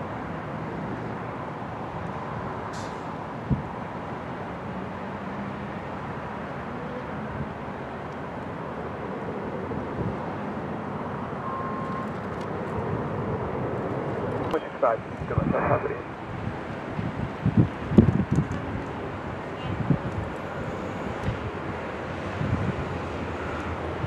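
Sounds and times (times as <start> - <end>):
jet engines rushing: 7.3 - 24.0.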